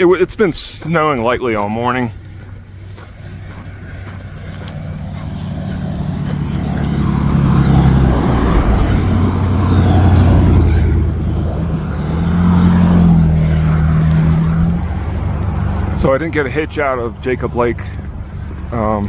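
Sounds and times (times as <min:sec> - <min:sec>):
road traffic passing: 0:00.0 - 0:19.0
engine note: 0:03.0 - 0:16.6.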